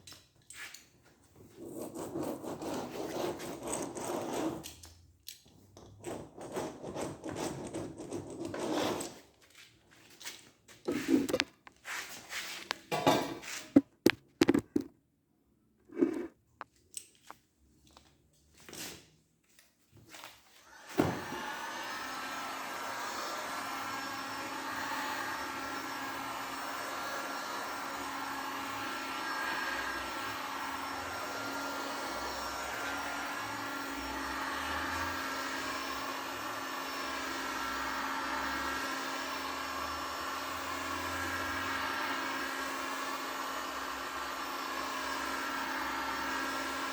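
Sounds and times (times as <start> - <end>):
handling knocks and clicks: 12.8 - 15.0
small electric motor whine: 20.7 - 46.9.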